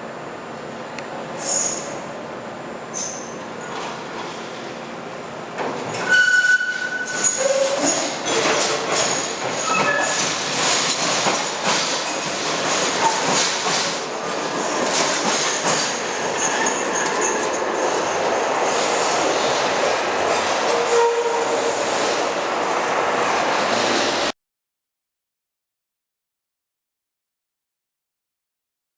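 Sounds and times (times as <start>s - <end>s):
tram running along track: 0.0s - 24.3s
wheels clattering on rails: 5.6s - 21.0s
high wheel squeals: 6.0s - 8.4s, 9.0s - 10.3s.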